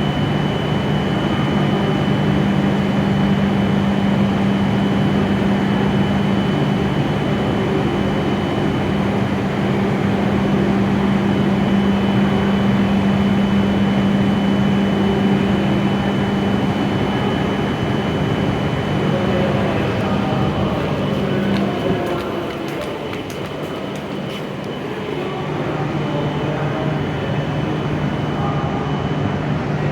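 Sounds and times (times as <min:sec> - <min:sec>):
train equipment low hum: 0:00.0 - 0:29.9.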